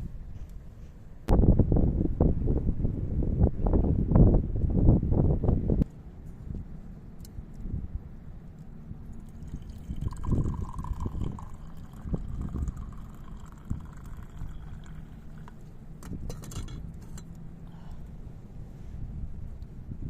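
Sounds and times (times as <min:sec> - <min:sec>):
low wind rumble: 0:00.0 - 0:20.0
liquid pouring into container: 0:09.2 - 0:15.7.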